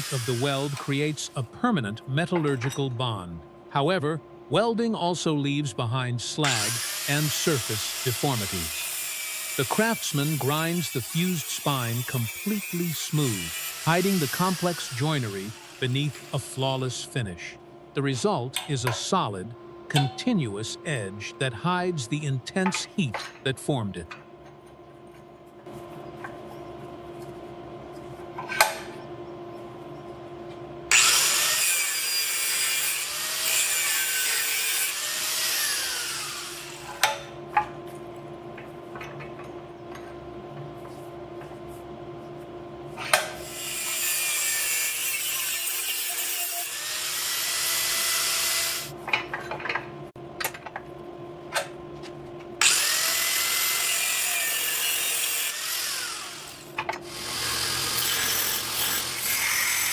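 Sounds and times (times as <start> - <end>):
power tool working: 0.0 - 1.0, 6.4 - 16.3, 30.9 - 37.0, 43.4 - 49.0, 52.6 - 59.9
steady machine hum: 0.0 - 31.6.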